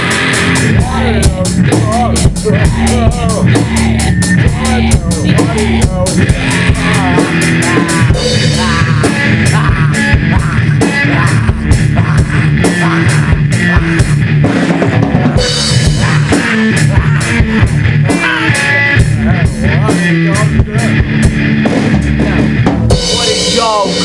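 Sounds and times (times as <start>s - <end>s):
guitar sliding high notes: 0.0s - 14.6s, 15.2s - 24.0s
heavy metal music: 0.0s - 24.0s
rapid drum hits: 0.0s - 24.0s.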